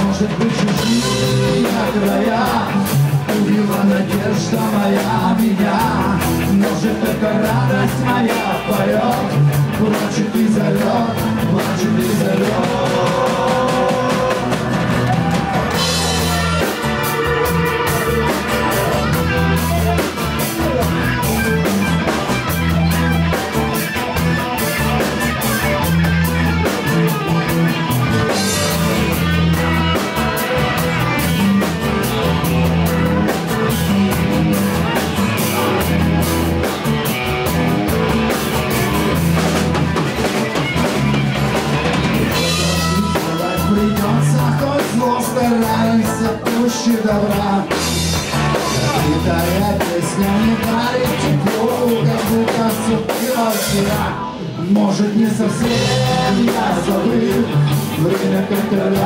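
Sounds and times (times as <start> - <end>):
bass line: 0.0 - 59.0
drum kit with cymbals: 0.0 - 59.0
electric guitar: 0.0 - 59.0.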